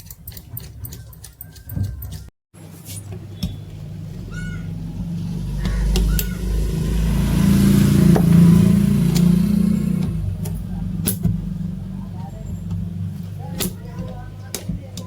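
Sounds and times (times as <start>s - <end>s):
vehicle engine passing by: 3.7s - 14.0s.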